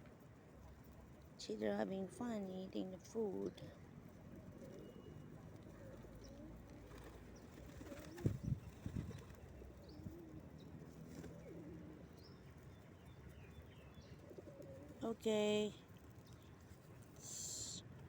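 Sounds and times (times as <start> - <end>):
pigeons cooing softly: 3.1 - 15.3
faint bird chirps: 4.6 - 10.7.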